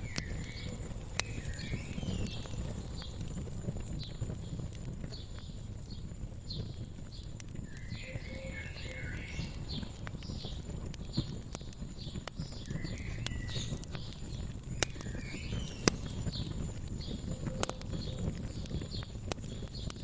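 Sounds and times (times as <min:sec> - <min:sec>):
low rumble of flame: 0:00.0 - 0:20.0
small birds chirping: 0:00.0 - 0:20.0
wood fire crackling: 0:00.0 - 0:20.0.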